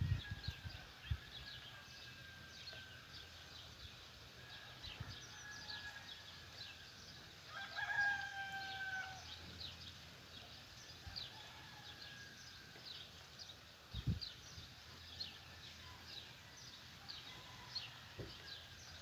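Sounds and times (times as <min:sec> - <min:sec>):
distant rooster crow: 0:04.4 - 0:06.7, 0:07.5 - 0:09.4, 0:11.0 - 0:12.9, 0:15.8 - 0:19.0
rooster crowing: 0:07.5 - 0:09.3
small birds chirping: 0:12.5 - 0:19.0.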